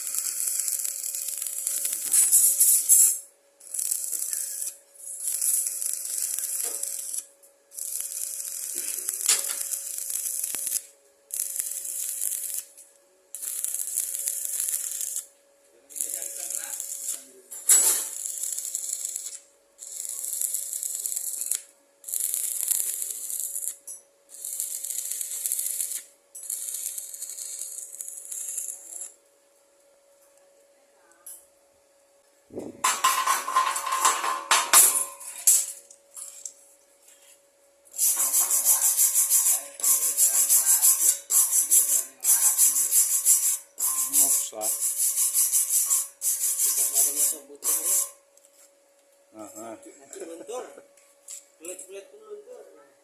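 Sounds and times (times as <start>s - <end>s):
welding arc crackling: 0.0s - 15.3s, 15.9s - 29.2s, 37.9s - 48.2s.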